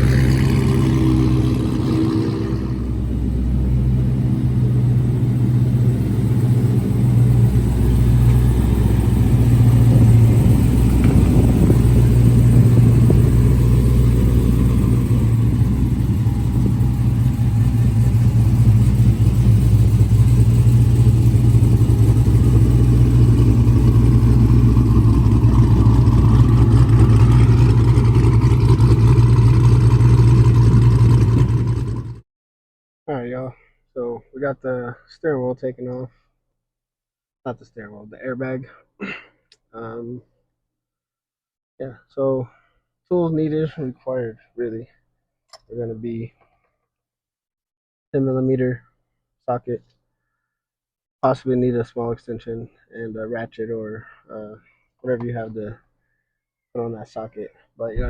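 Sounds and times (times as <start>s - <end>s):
car engine idling: 0.0s - 32.2s.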